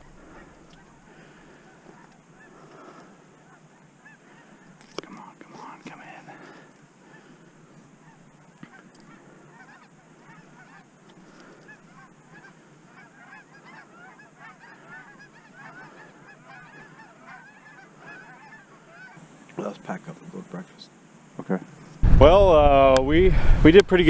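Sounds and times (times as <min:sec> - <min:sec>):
geese honking in flight: 0:09.1 - 0:10.9, 0:11.6 - 0:19.2.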